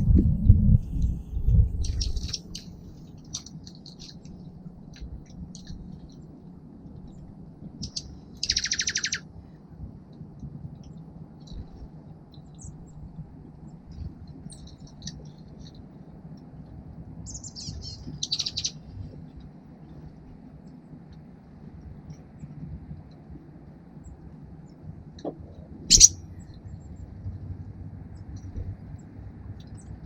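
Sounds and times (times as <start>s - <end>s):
steady low hum: 0.0s - 30.0s
high bird chirps: 1.8s - 2.7s, 7.8s - 9.2s, 17.3s - 18.8s, 25.9s - 26.2s
songbird harsh buzzy call: 25.9s - 26.2s.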